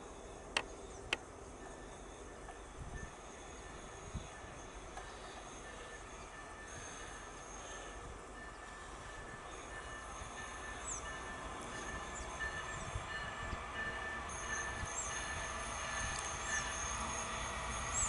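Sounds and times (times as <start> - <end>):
diesel locomotive rumble: 0.0 - 18.0
high squealing wheels: 13.8 - 18.0.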